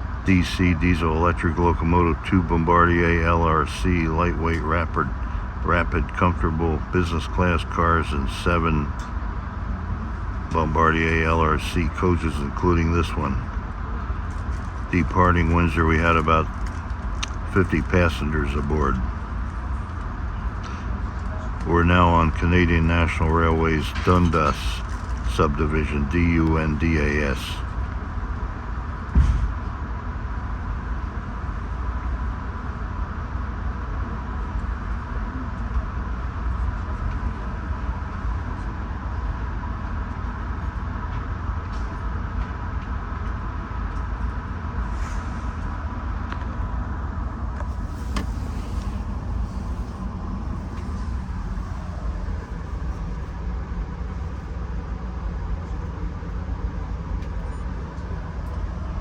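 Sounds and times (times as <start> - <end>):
thin constant hum: 0.0 - 59.0
train coach low rumble: 0.0 - 59.0
sharp thump: 29.2 - 29.5.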